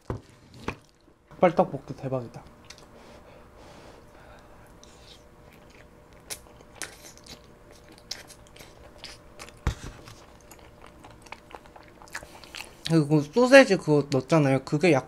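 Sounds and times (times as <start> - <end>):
chewing with wet mouth clicks: 2.4 - 2.9, 4.7 - 13.0.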